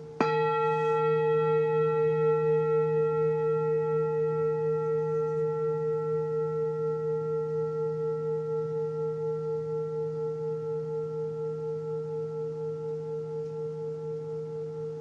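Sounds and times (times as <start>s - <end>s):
singing bowl ringing: 0.0s - 15.0s.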